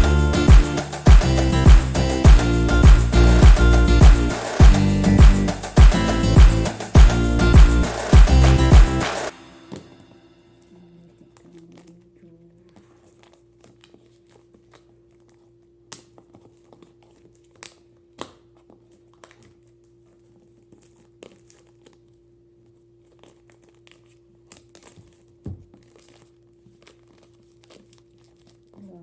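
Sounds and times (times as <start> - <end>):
sharp clicks and taps: 0.0 - 9.3
crinkling and tearing of wrapping: 20.4 - 22.3, 23.0 - 29.0.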